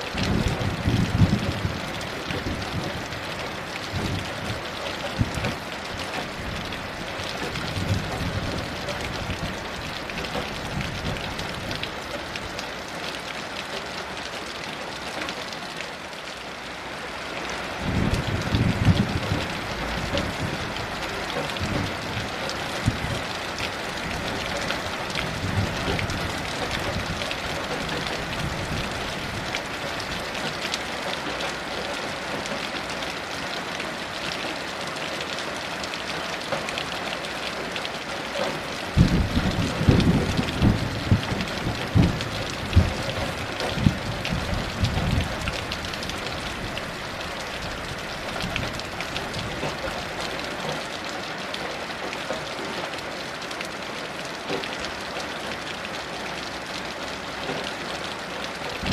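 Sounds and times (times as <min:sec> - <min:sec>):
heavy rain falling: 0:00.0 - 0:58.9
distant thunder rumbles: 0:17.8 - 0:23.3, 0:38.9 - 0:46.7.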